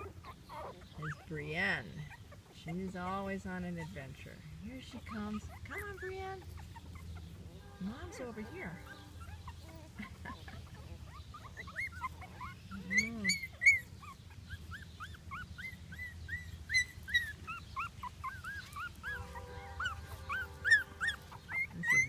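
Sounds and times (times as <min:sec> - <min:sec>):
puppies whining: 0:00.0 - 0:22.0.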